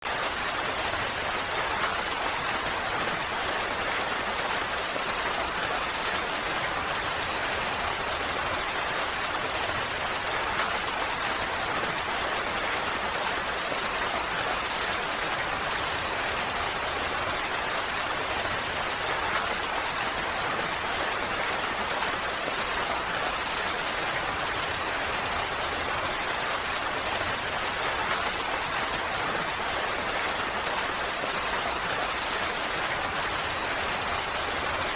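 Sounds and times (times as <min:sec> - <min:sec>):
rain hissing and pattering: 0:00.0 - 0:34.9.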